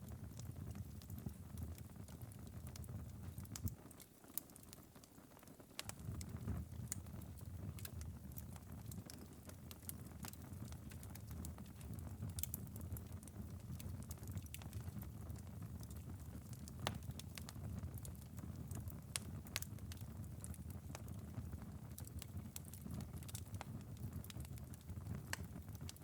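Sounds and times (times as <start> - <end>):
embers crackling and popping: 0.0 - 26.0
low rumble of fire: 0.0 - 26.0.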